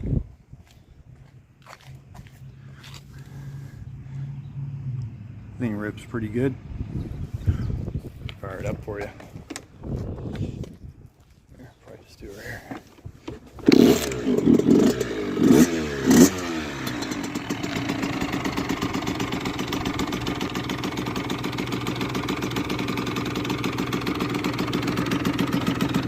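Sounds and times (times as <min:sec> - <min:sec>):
two-stroke engine blips and idling: 0:13.4 - 0:26.0.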